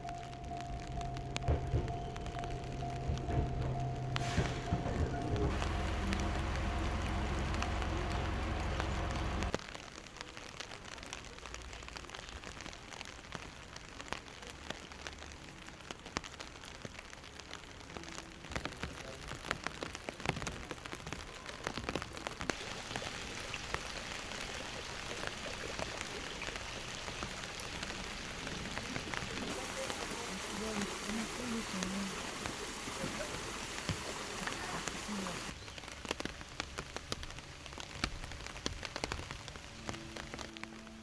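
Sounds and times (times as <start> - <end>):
rain falling: 0.0 - 41.0
low hum with held tones: 5.3 - 9.6.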